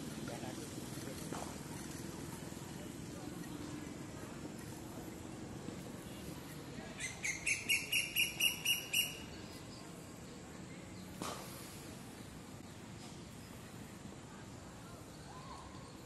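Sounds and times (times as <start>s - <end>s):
bird chirping: 6.9s - 9.6s.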